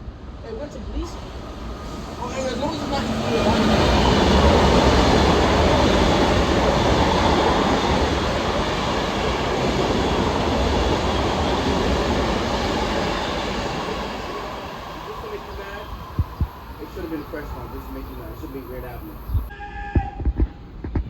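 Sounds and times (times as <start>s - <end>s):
train rumbling past: 0.0s - 21.0s.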